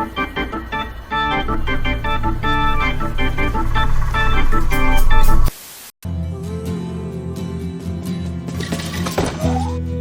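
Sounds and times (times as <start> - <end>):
organ music: 0.0 - 5.5.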